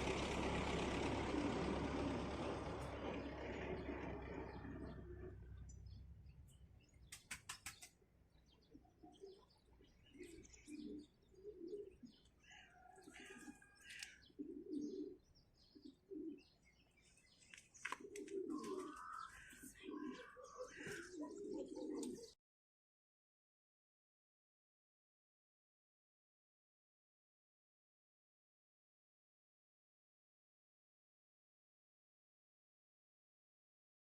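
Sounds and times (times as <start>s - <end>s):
doves cooing: 0.0s - 5.7s, 7.1s - 22.4s
small birds chirping: 1.3s - 22.4s
quick run of clicks: 7.0s - 8.0s.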